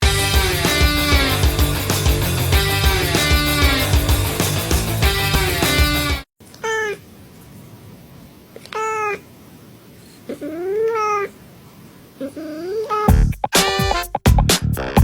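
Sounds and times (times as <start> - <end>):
music: 0.0 - 6.3, 13.1 - 15.0
cat meowing: 12.2 - 13.2.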